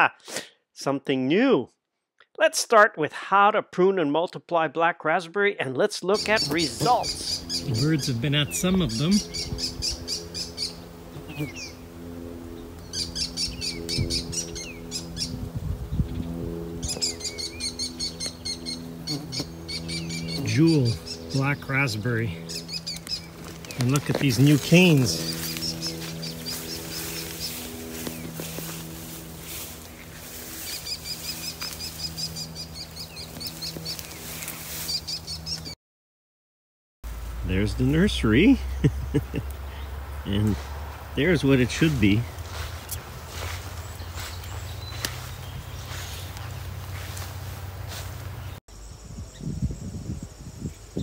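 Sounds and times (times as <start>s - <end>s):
songbird trilling: 6.1s - 11.9s, 12.6s - 28.8s, 29.5s - 35.7s, 41.2s - 47.3s
steady low hum: 6.2s - 35.8s, 37.1s - 51.0s.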